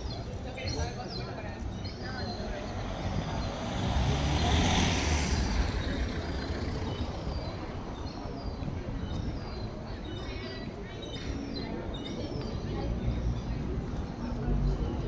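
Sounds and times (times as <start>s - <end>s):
traffic hum: 0.0s - 10.0s
motor vehicle passing: 2.0s - 8.6s.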